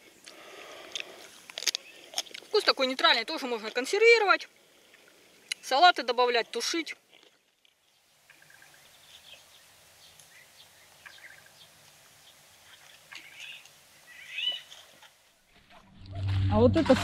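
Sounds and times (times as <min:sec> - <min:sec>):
faint outdoor background noise: 0:00.0 - 0:17.0
small birds chirping: 0:01.7 - 0:03.5, 0:04.8 - 0:14.8.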